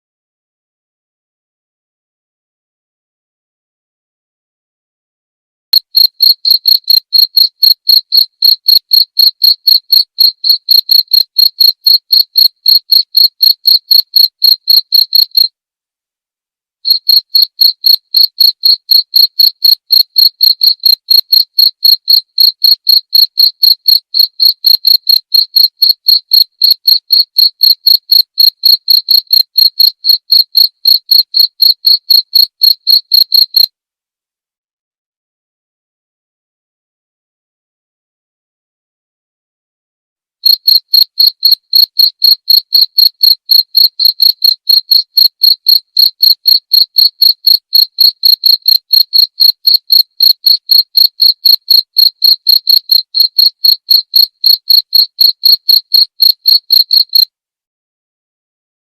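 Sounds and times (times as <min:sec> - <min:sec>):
cricket chirping: 0:05.7 - 0:15.5, 0:16.9 - 0:33.7, 0:40.4 - 0:57.2.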